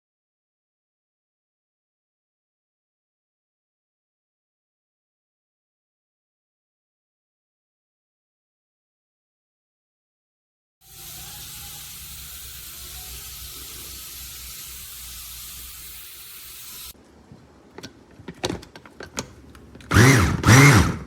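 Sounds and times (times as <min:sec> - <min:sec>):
steady hiss: 0:10.9 - 0:17.0
plastic parts clicking: 0:17.7 - 0:21.0
food chopper motor: 0:19.8 - 0:21.0.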